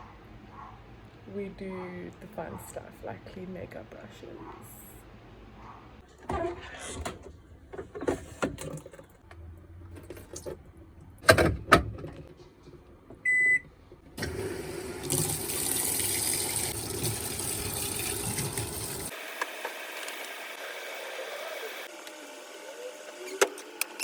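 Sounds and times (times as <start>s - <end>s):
water rushing into drum: 14.2s - 19.1s.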